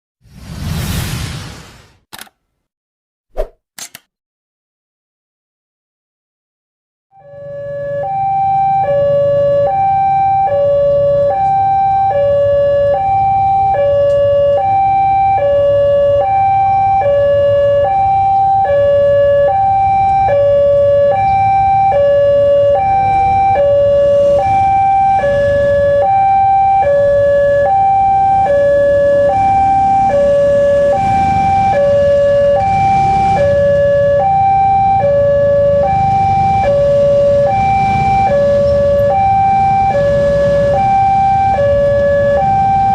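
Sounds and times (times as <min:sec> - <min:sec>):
level crossing two-tone alarm: 0:07.2 - 0:42.9.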